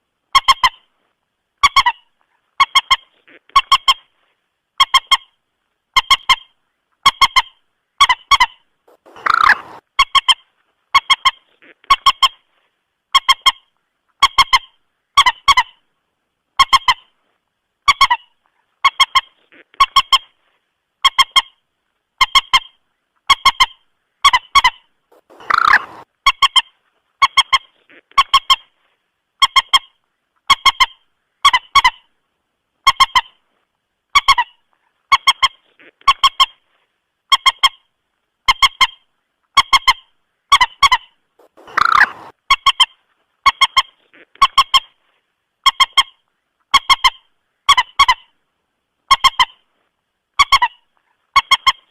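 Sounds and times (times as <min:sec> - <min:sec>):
moorhen clucking calls: 0:06.0 - 0:12.5, 0:23.3 - 0:28.7, 0:39.6 - 0:45.0
longer harsher bird call: 0:09.0 - 0:09.8, 0:25.2 - 0:26.0, 0:41.5 - 0:42.3.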